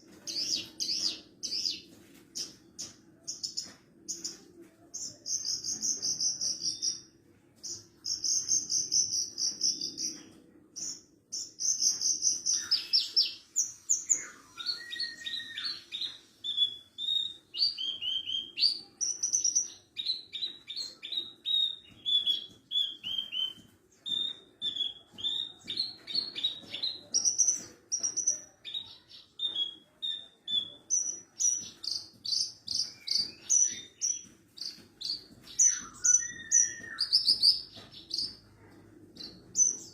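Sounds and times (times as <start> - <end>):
bird singing chirps and trills: 7.6 - 38.4.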